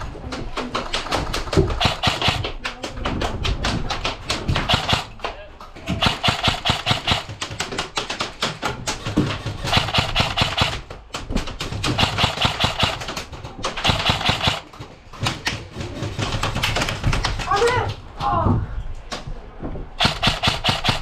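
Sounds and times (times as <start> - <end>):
airsoft guns firing: 0.8 - 2.9, 3.9 - 15.2, 20.0 - 21.0.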